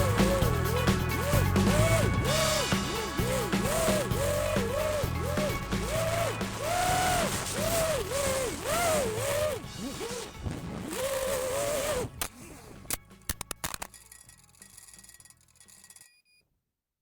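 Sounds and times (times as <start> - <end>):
quadcopter motors whining: 0.0 - 13.0
sharp clicks: 0.0 - 15.8.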